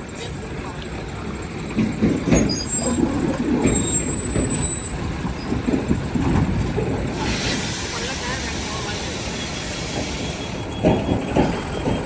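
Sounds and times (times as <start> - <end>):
diesel engine rumbling: 0.0 - 12.0
hiss: 7.2 - 10.7.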